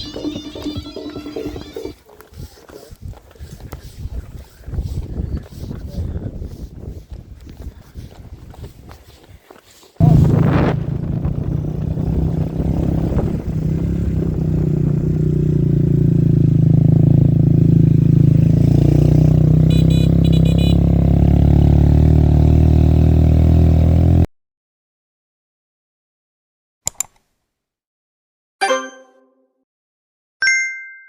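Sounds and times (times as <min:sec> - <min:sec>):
vehicle engine running: 0:10.0 - 0:24.3.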